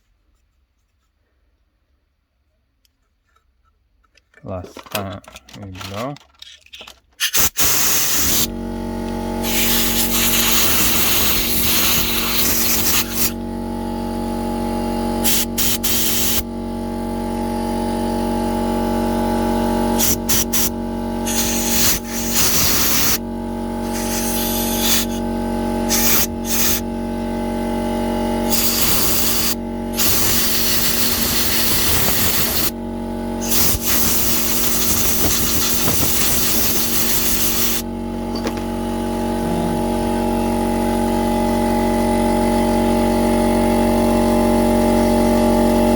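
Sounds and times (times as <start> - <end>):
steady mechanical hum: 2.8 - 45.9
compressed air hissing blasts: 7.2 - 8.5, 9.4 - 13.4, 15.2 - 16.5, 17.1 - 23.2, 23.8 - 26.8, 28.4 - 32.8, 33.4 - 37.8.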